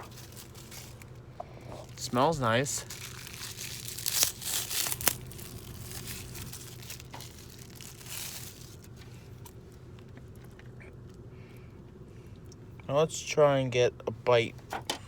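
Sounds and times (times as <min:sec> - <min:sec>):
food packaging crinkling: 0:00.0 - 0:09.6
steady low hum: 0:00.0 - 0:15.0.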